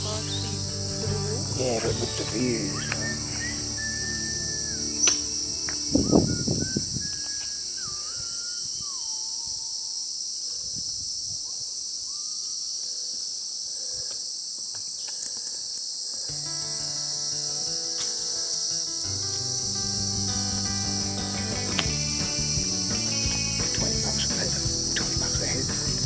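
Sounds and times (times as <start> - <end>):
background music sustained notes: 0.0 - 8.4, 16.3 - 26.0
insect chorus buzzing: 0.0 - 26.0
bird whistled calls: 2.4 - 10.1, 12.0 - 12.7.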